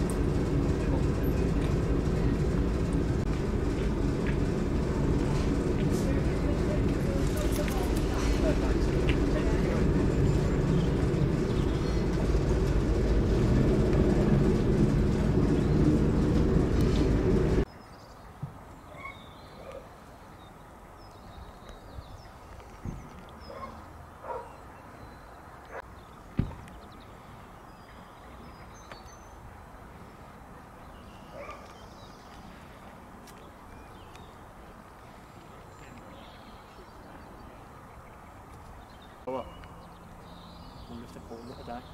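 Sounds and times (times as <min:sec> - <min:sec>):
heavy diesel engine rumbling: 0:00.0 - 0:17.7
outdoor background noise: 0:00.0 - 0:41.9
sudden thump: 0:26.4 - 0:26.6.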